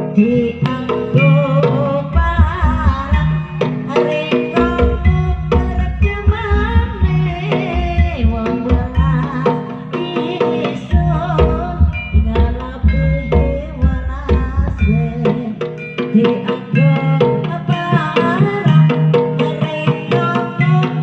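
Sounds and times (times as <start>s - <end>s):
hand drums driving rhythm: 0.0s - 21.0s
person singing: 0.0s - 21.0s
wavering melody line: 0.0s - 21.0s.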